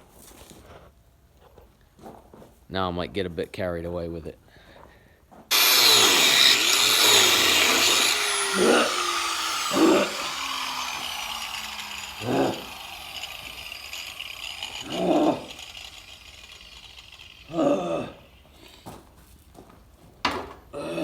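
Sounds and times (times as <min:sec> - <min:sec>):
power tool winding down: 0:05.5 - 0:18.6.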